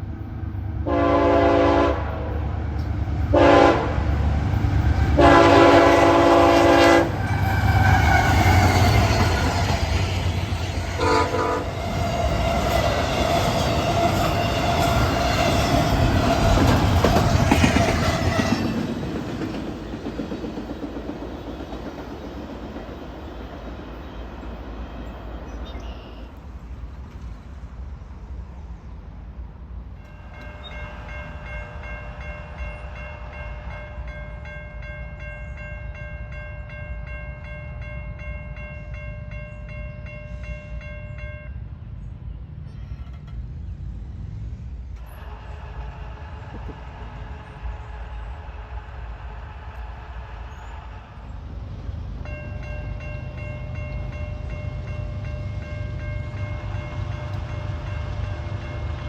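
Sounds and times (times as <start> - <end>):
train rumbling: 0.0 - 59.0
locomotive air horn blasts: 0.8 - 2.4, 3.3 - 4.2, 5.2 - 8.6, 10.9 - 12.8.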